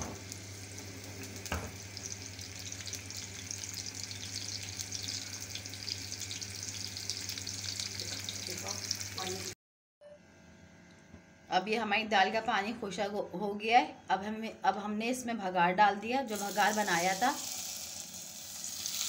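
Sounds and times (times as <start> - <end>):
spices sizzling in hot oil: 0.0 - 9.6, 16.3 - 19.0.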